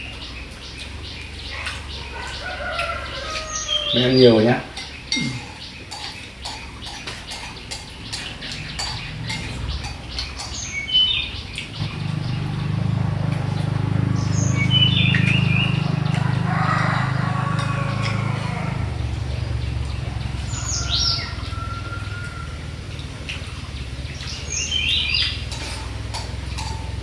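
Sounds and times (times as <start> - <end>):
birds chirping: 0.0 - 27.0
low mechanical hum: 8.0 - 20.7.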